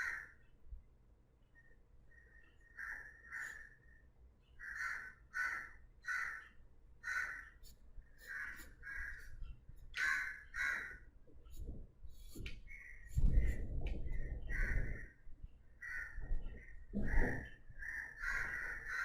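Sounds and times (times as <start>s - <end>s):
crow cawing: 0.0s - 0.4s, 2.1s - 4.0s, 4.6s - 11.1s, 14.5s - 15.2s, 15.8s - 19.0s.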